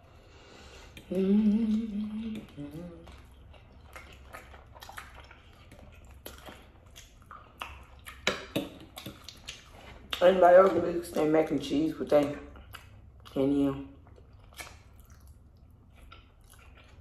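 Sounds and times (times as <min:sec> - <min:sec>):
person humming: 0:01.0 - 0:03.2.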